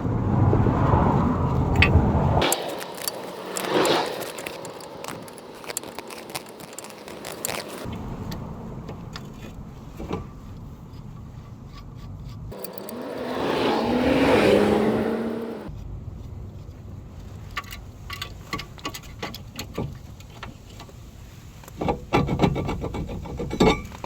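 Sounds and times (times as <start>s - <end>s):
metal tools clinking and scraping: 1.8s - 7.9s, 11.7s - 13.3s.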